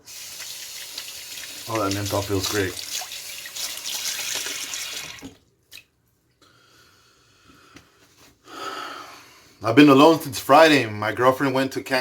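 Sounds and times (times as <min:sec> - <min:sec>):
sink faucet running: 0:00.0 - 0:05.4.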